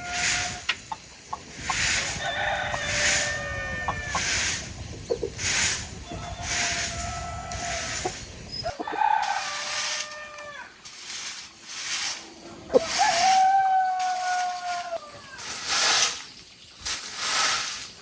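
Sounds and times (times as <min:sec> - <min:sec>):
chickens calling: 0:00.0 - 0:10.5.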